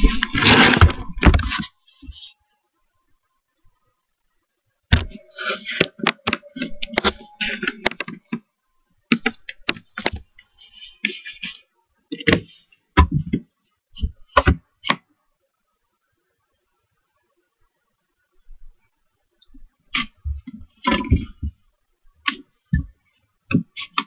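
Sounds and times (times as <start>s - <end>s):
rustling: 0.0s - 2.4s.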